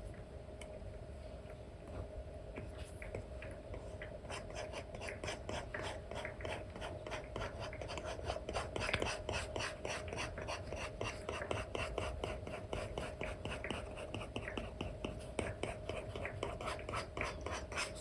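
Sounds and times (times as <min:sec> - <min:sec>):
faint steady hum: 0:00.0 - 0:18.0
stylus scratching on screen: 0:04.3 - 0:18.0.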